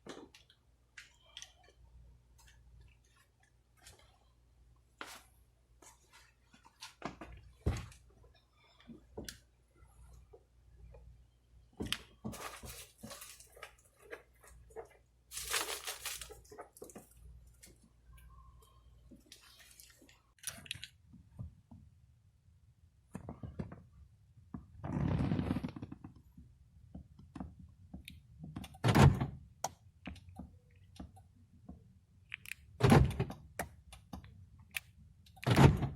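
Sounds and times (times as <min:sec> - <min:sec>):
rustling: 0:12.3 - 0:17.8.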